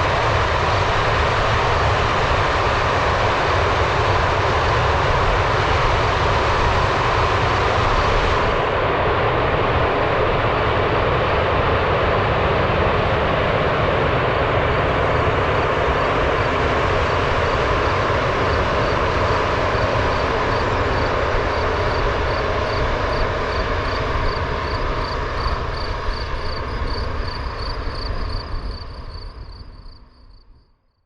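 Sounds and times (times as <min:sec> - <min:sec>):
train rumbling past: 0:00.0 - 0:30.4.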